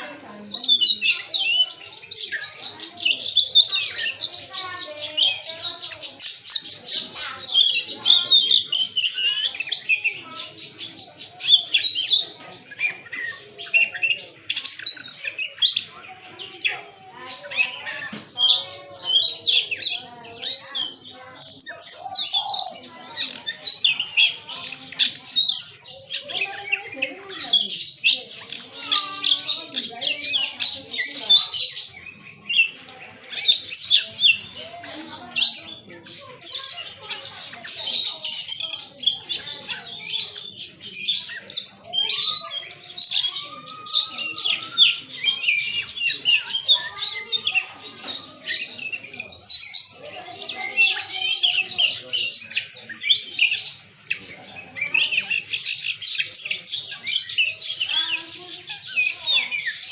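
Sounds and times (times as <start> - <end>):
bird singing varied phrases: 0.0 - 59.9.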